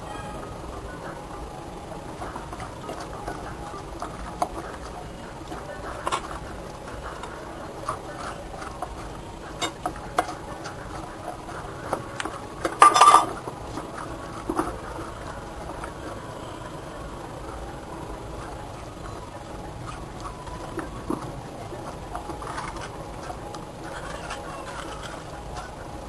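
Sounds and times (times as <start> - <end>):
dishes and utensils clinking: 7.1 - 15.9.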